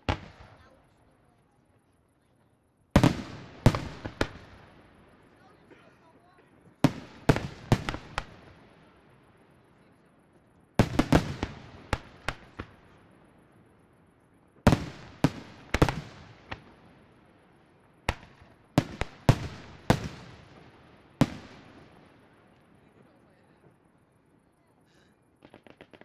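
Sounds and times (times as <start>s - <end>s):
firework shells bursting: 23.6s - 26.0s.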